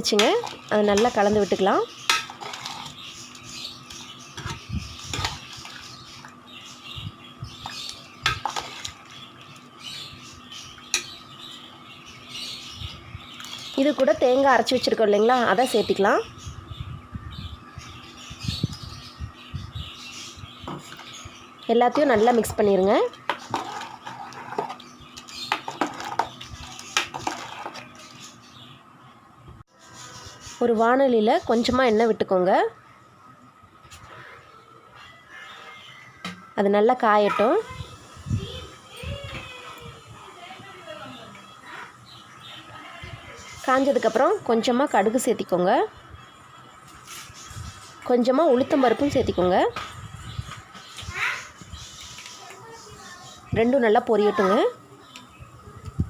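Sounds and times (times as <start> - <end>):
metal utensil stirring food in pot: 0.0 - 6.4, 7.5 - 9.7, 10.7 - 11.6, 21.9 - 28.2.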